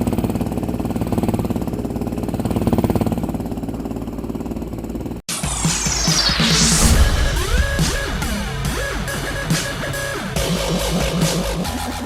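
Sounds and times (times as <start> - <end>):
motorcycle engine running: 0.0 - 5.2
electronic music: 5.3 - 10.6.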